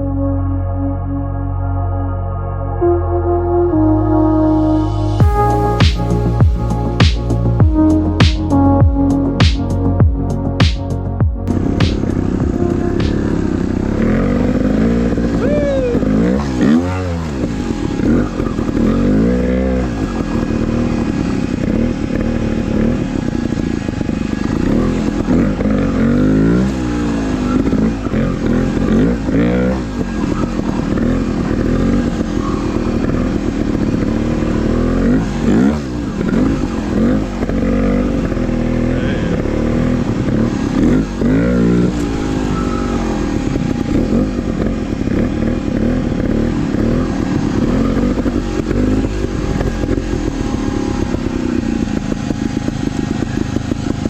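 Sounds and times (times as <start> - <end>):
dirt bike engine revving: 3.7 - 54.0.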